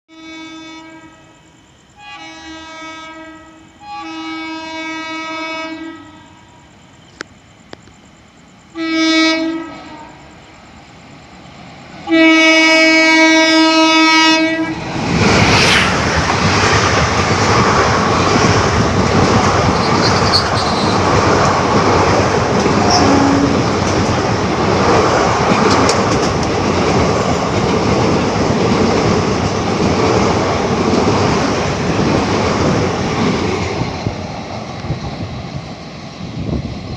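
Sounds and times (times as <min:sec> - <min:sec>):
locomotive horn blasts: 0:00.1 - 0:01.4, 0:02.0 - 0:06.4, 0:08.8 - 0:10.2, 0:12.1 - 0:14.8, 0:20.0 - 0:21.0, 0:22.8 - 0:23.7
train passing at speed: 0:00.2 - 0:36.9
wheels clacking over rail joints: 0:16.0 - 0:36.2.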